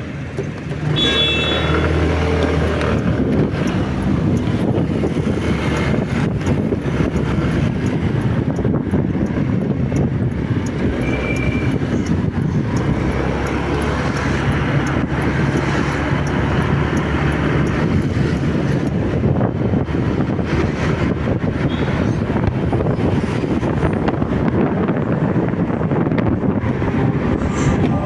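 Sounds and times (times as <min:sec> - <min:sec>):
motorcycle engine running: 0:00.0 - 0:20.5
wind over microphone: 0:00.0 - 0:28.0.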